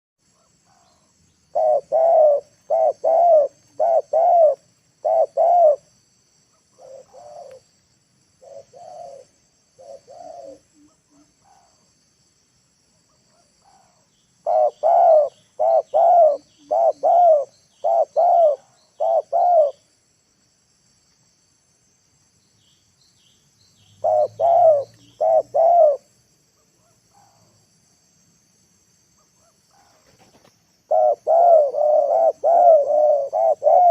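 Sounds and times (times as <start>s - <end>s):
high insect hiss: 0.2s - 33.9s
dove cooing: 1.5s - 5.9s, 6.7s - 7.6s, 8.4s - 11.8s, 13.3s - 19.8s, 24.0s - 26.1s, 29.4s - 33.9s.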